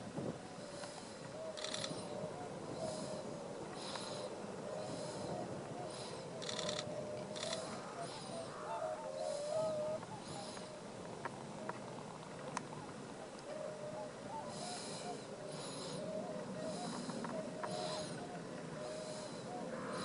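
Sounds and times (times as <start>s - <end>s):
birds chattering calls: 0.6s - 20.0s
high scratchy bird calls: 0.7s - 10.8s, 14.0s - 20.0s
sharp clicks: 1.6s - 2.0s, 6.4s - 7.7s.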